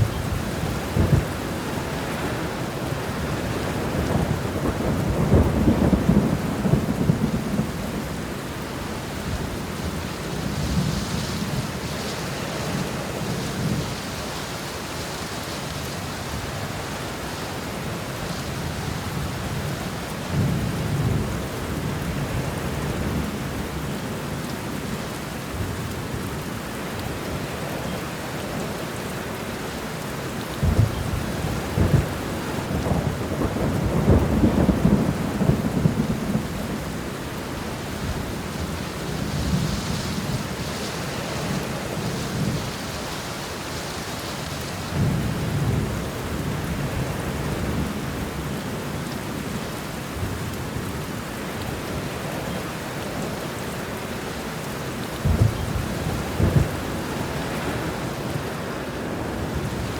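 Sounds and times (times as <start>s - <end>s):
thunder rumbling: 0.0s - 8.3s, 30.6s - 43.2s, 44.8s - 48.5s, 55.2s - 58.6s
rain hiss: 0.0s - 59.9s.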